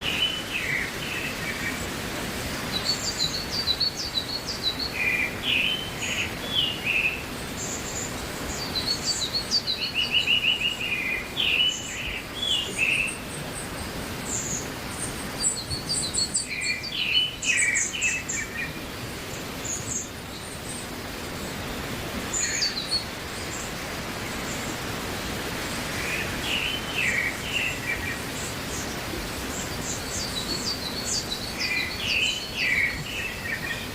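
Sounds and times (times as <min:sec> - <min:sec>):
small birds chirping and singing: 0:00.0 - 0:33.9
steady background hiss: 0:00.0 - 0:33.9.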